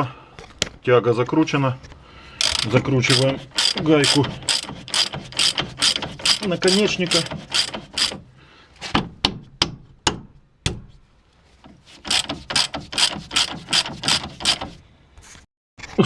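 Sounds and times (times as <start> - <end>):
ratchet wrench clicking: 2.4 - 8.2, 12.0 - 14.8.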